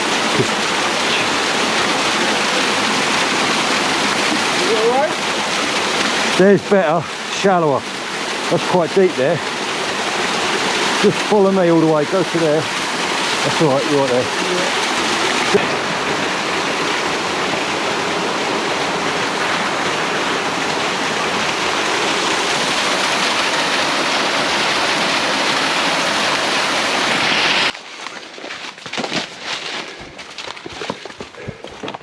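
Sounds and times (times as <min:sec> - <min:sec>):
stream rushing: 0:00.0 - 0:31.0.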